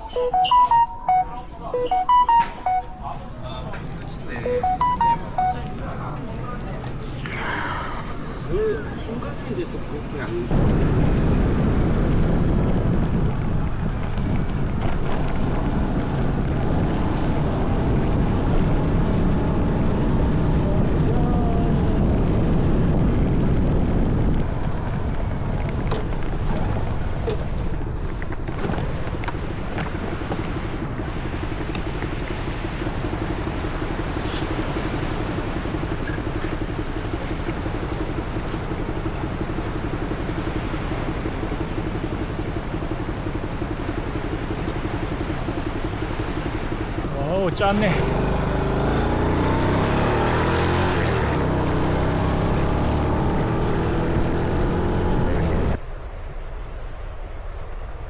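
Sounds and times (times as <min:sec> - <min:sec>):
wind rumbling on microphone: 0:06.2 - 0:58.0
small motorcycle engine running: 0:24.6 - 0:55.7.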